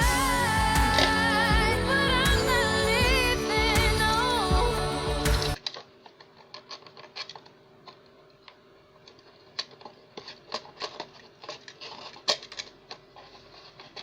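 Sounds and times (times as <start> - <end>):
small hard parts clicking: 5.6 - 14.0.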